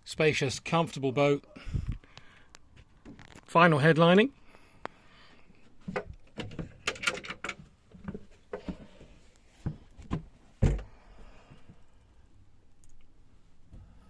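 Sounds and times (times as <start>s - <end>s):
deep thump: 10.6s - 11.0s.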